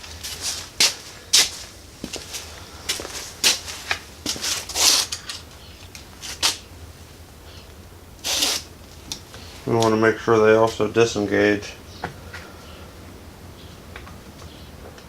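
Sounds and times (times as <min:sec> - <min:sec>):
short rasps: 0:07.4 - 0:08.7.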